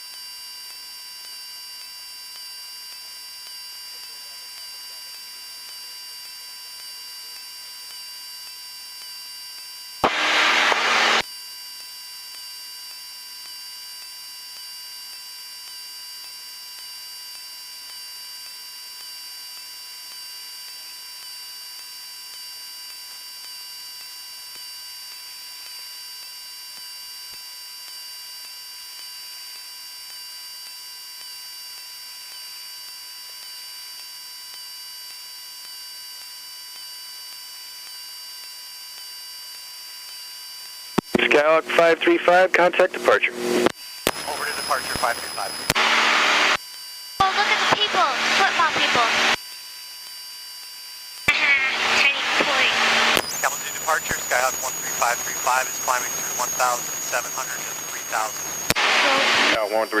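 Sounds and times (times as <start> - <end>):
intercom electrical hiss and whine: 0.8 - 11.2, 12.2 - 49.4, 51.2 - 60.0
burst of radio static: 10.0 - 11.2, 41.0 - 46.6, 47.2 - 49.4, 51.3 - 60.0.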